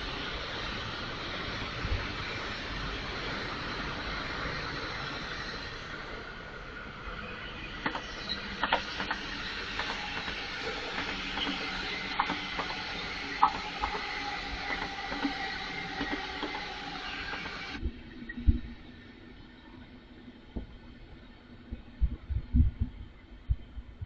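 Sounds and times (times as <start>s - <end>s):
train rumble and hiss: 0.0s - 24.0s
wheel and rail clicks: 7.8s - 16.7s.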